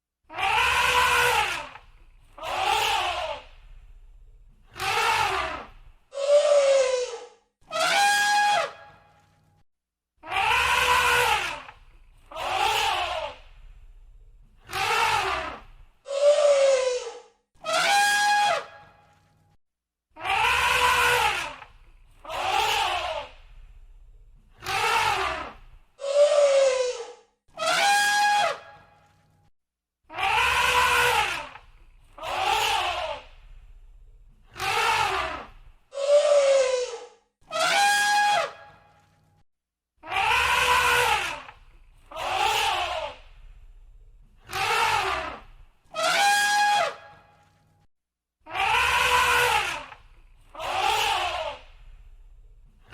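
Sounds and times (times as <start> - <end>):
elephant trumpeting: 0.4 - 1.8, 6.2 - 8.8, 10.3 - 11.7, 14.7 - 18.9, 20.2 - 21.6, 22.2 - 23.4, 24.6 - 28.8, 30.2 - 31.6, 34.5 - 38.8, 40.0 - 43.2, 44.4 - 47.2, 48.5 - 51.7.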